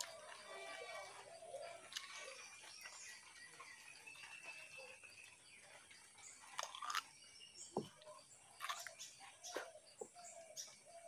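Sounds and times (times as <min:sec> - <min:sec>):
cucumber crunching: 0:06.2 - 0:09.1.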